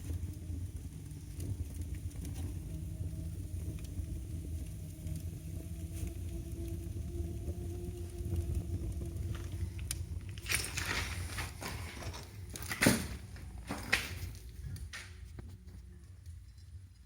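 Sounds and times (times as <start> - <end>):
low steady rumble: 0.0 - 17.0
scraping and rustling handling noises: 9.3 - 15.7.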